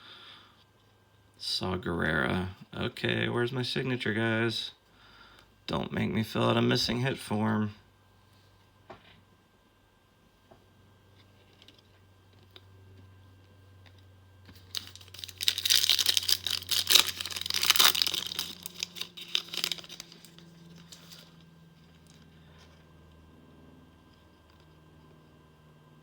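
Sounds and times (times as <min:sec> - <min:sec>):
foil wrapper tearing and crinkling: 0:14.5 - 0:21.4.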